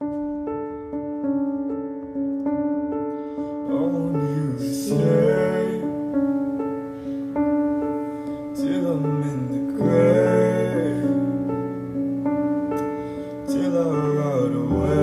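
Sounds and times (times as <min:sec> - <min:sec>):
piano chords: 0:00.0 - 0:15.0
person singing: 0:03.6 - 0:06.8, 0:08.4 - 0:11.8, 0:12.8 - 0:15.0.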